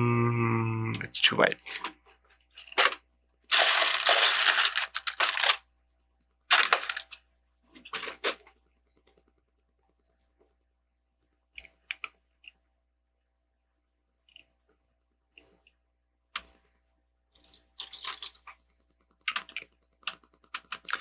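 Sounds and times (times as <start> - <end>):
plastic bricks clicking: 19.0 - 21.0.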